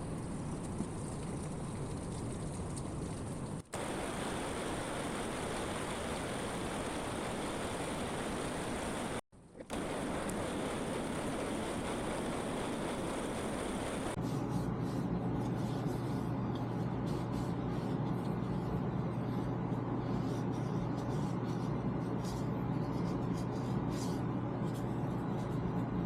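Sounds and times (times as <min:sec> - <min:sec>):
lathe running: 0:03.8 - 0:14.2.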